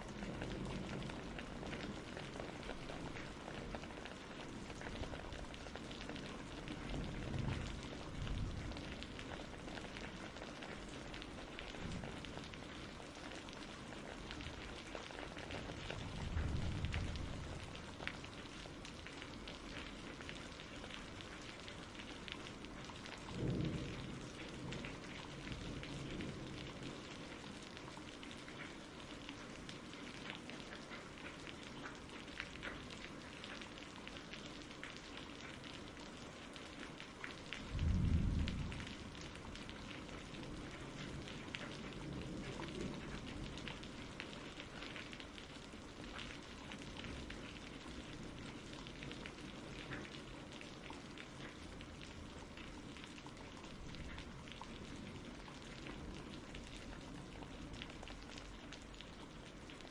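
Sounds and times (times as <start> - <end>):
low rumbles of thunder: 0.0 - 21.5, 22.1 - 28.7, 37.5 - 46.2
steady rain: 0.0 - 59.9.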